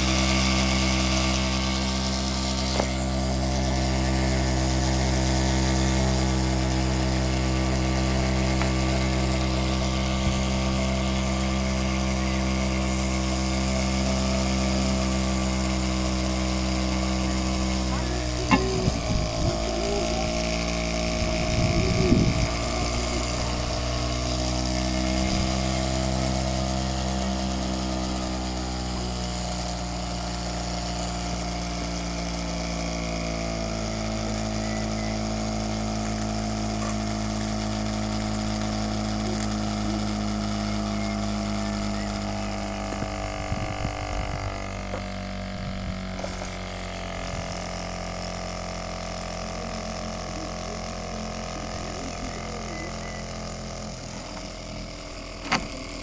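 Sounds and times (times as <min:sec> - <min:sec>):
stirling engine humming: 0:00.0 - 0:30.2, 0:33.3 - 0:47.9.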